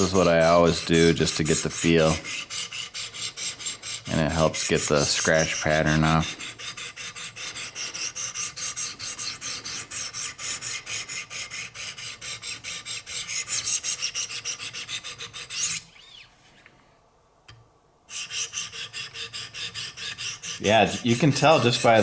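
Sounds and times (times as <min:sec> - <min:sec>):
diamond plate rasping on blade: 0:00.0 - 0:15.9, 0:18.1 - 0:22.0.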